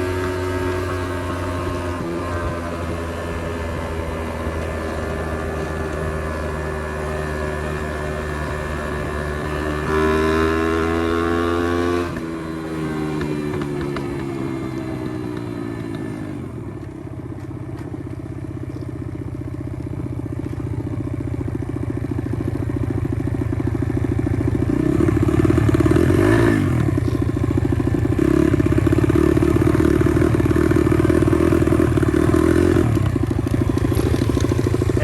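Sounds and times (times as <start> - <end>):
small motorbike engine revving: 0.0 - 16.6, 24.5 - 35.0.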